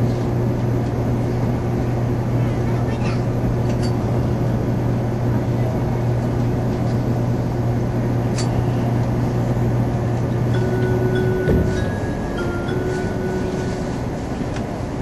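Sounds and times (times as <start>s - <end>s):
train cabin hum: 0.0s - 15.0s
onboard chime melody: 10.5s - 14.2s.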